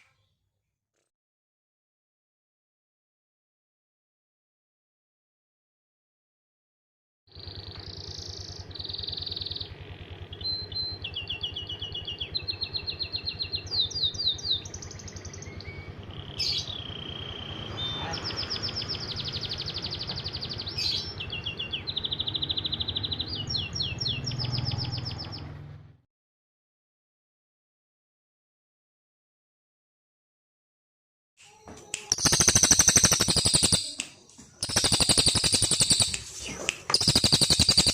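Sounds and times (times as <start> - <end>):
songbird singing trills: 7.3 - 25.6, 31.5 - 37.9.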